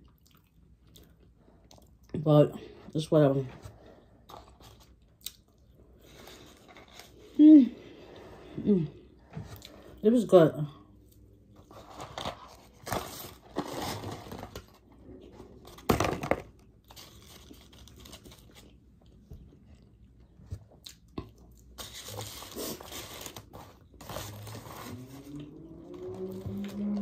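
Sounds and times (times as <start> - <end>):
chewing crunchy food: 0.0 - 2.2, 17.4 - 22.7.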